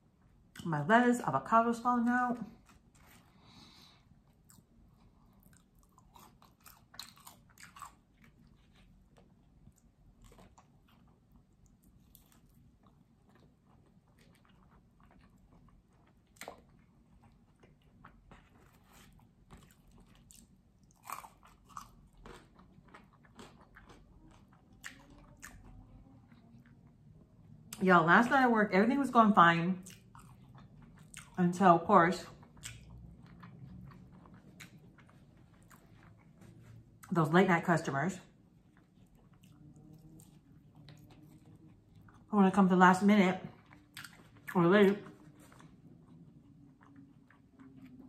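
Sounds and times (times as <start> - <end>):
person chewing food: 2.5 - 27.8, 29.8 - 31.4, 32.2 - 37.2, 38.3 - 42.3, 43.5 - 48.0
sharp food crunches: 5.4 - 8.5, 18.5 - 25.6.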